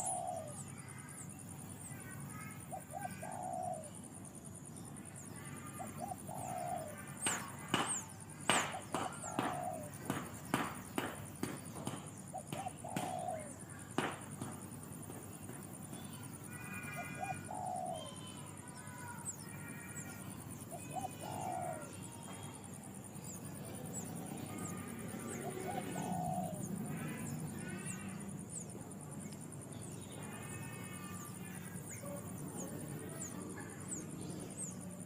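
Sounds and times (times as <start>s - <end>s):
low bird call: 5.2s - 13.9s.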